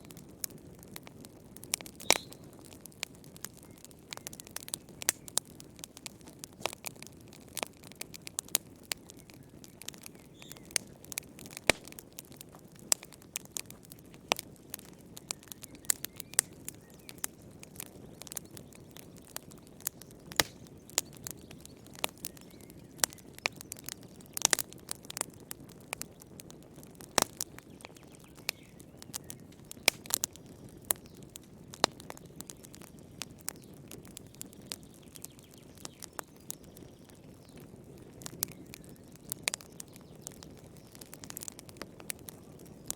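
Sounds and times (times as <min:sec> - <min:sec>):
fire crackling and popping: 0:00.0 - 0:42.9
low rumble of flames: 0:00.0 - 0:42.9.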